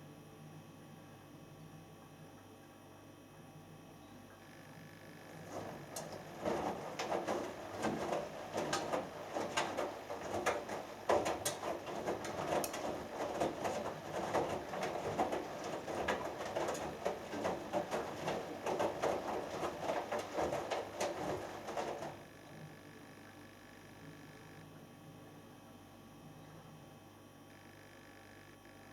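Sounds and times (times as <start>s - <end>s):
laundry sloshing in washing machine: 5.2s - 22.4s
clicks and knocks against drum: 5.3s - 22.2s.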